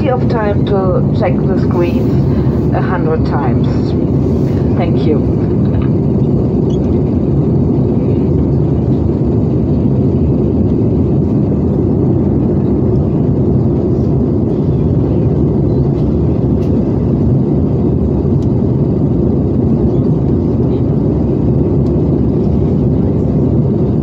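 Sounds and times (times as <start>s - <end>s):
airliner cabin rumble: 0.0s - 24.0s.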